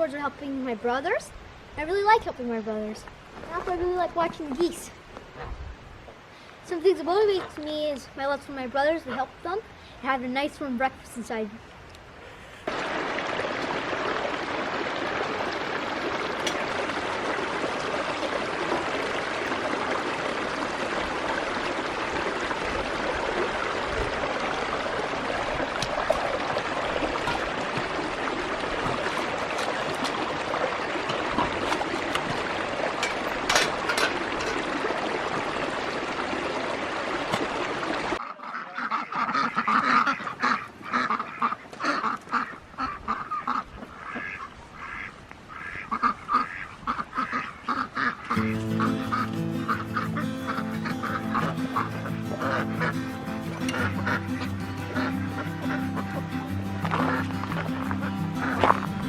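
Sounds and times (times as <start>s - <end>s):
ducks and geese calling: 23.7s - 34.7s, 38.2s - 59.0s
duck quacks: 38.2s - 58.9s.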